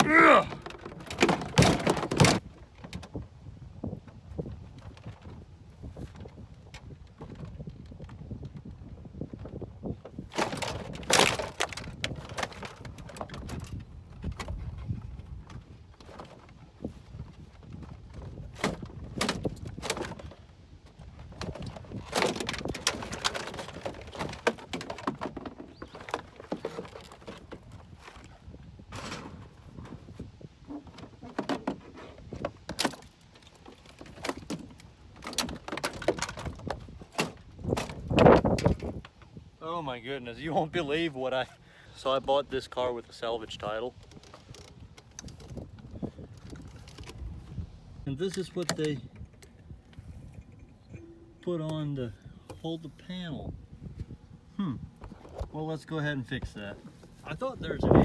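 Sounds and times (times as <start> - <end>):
crunching and scraping on car door: 0.0 - 3.2, 10.1 - 39.2, 54.8 - 58.0.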